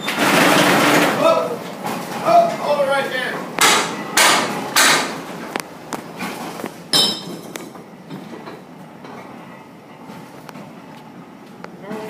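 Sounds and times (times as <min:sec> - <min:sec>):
heavy hammer strikes: 0:03.6 - 0:05.3, 0:06.9 - 0:07.4.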